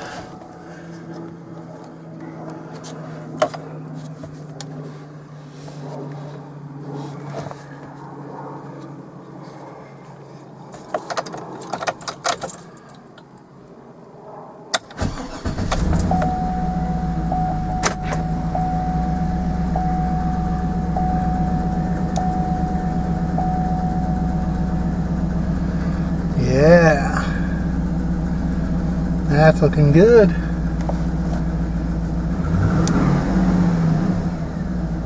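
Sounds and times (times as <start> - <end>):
car engine starting and idling: 14.9 - 35.0
chime beeping: 16.0 - 26.4
clicks: 17.3 - 25.1.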